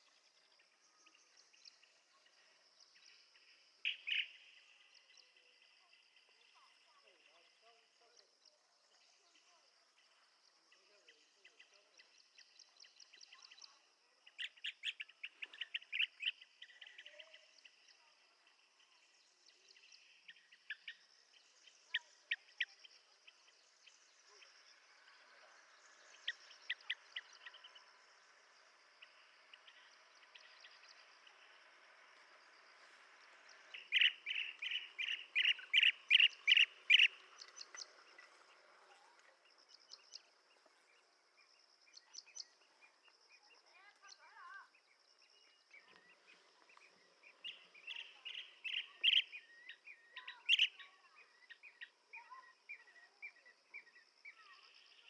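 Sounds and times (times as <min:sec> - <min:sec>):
birds calling short notes: 0:33.7 - 0:37.9.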